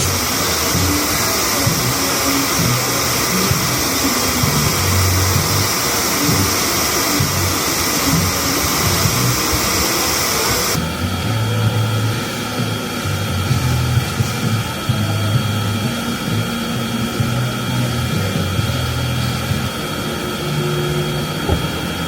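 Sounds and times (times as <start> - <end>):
air blowers: 0.0 - 22.0.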